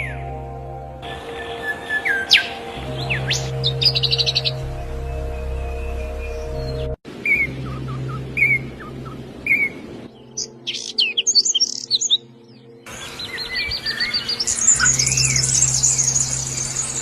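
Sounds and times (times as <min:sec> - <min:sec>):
songbirds chirping: 0:00.0 - 0:17.0
bird trill: 0:01.0 - 0:17.0
low steady hum: 0:02.7 - 0:10.7.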